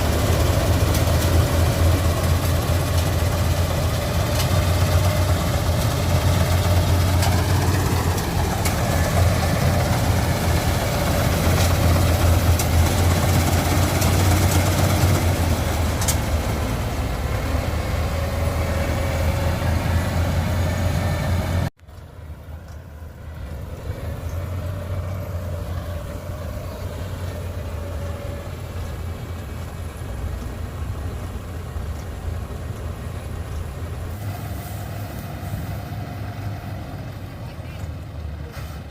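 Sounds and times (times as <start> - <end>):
harvester engine humming: 0.0 - 38.9.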